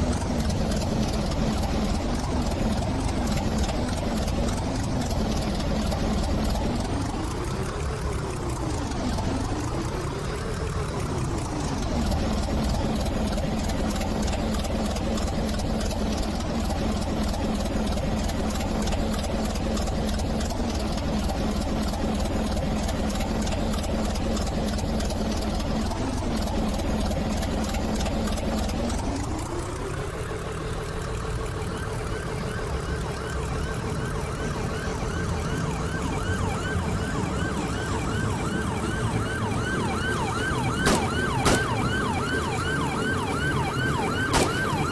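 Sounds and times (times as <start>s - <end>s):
train rumbling: 0.0s - 32.0s.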